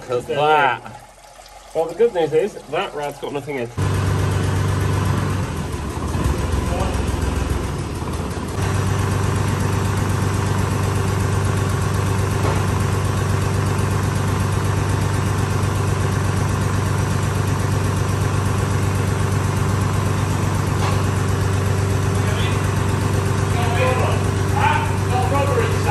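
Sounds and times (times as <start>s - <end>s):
machine motor humming: 1.7s - 25.9s.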